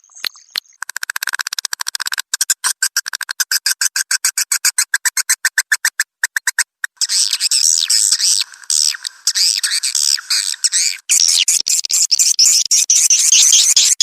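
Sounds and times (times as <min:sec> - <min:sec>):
high twittering chatter: 0:07.0 - 0:14.0.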